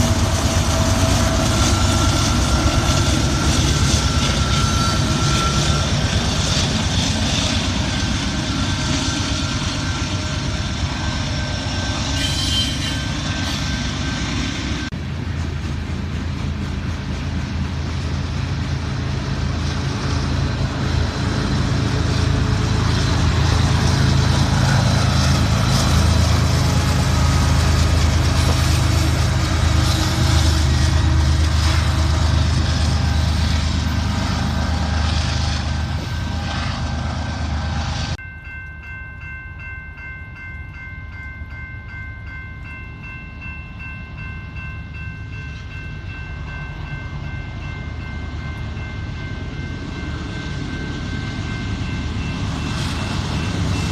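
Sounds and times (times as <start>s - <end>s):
train wheel clatter: 0.0s - 36.6s
diesel locomotive engine rumble: 0.0s - 53.9s
locomotive air horn chord: 12.1s - 13.7s.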